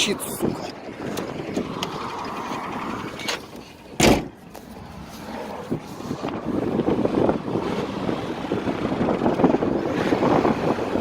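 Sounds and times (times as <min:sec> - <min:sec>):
loud thump: 0:04.0 - 0:04.4.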